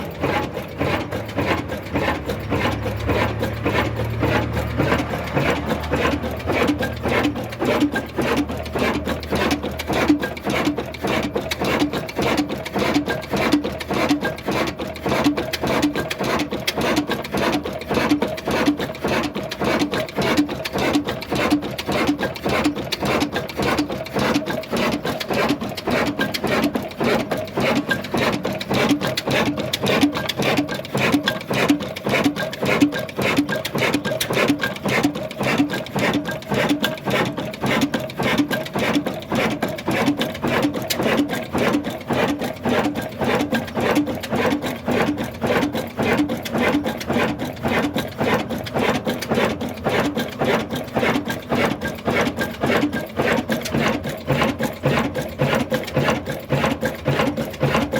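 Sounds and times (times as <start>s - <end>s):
diesel engine running: 0.0s - 11.6s.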